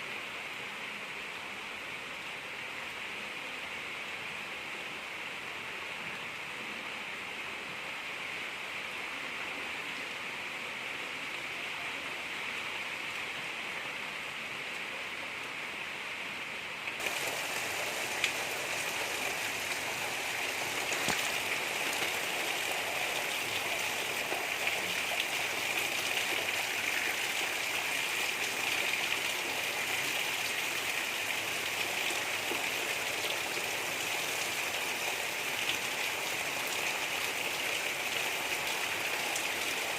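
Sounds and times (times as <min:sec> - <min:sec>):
steady rain hiss: 0:00.0 - 0:39.9
raindrop taps: 0:17.0 - 0:22.2.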